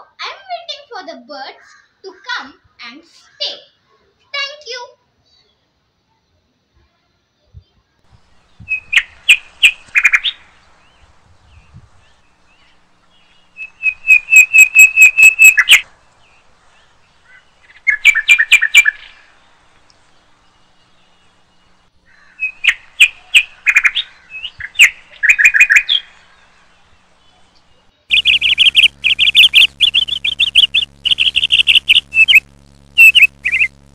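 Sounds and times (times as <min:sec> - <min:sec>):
small bird chirping: 0:08.1 - 0:33.9
steady low hum: 0:08.1 - 0:33.9.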